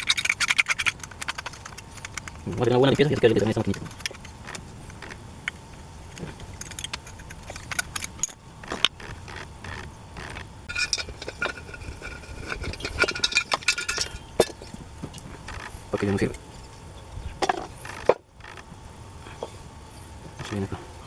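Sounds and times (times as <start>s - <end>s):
metal parts clinking and rattling: 0.0s - 5.2s, 6.1s - 16.8s
metallic ringing: 6.5s - 16.8s.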